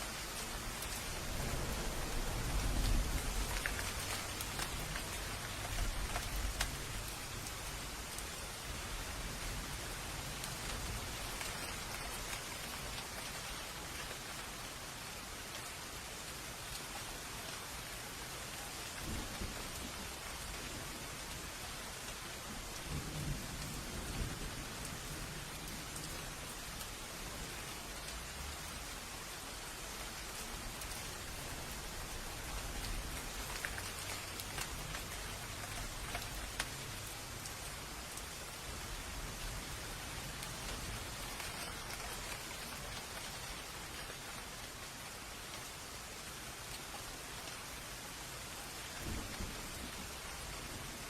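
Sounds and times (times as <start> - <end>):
rain falling: 0.0 - 51.0
raindrops ticking: 0.1 - 14.4, 29.6 - 44.6
low rumble of thunder: 0.3 - 8.0, 19.0 - 21.2, 22.5 - 27.6, 49.0 - 51.0.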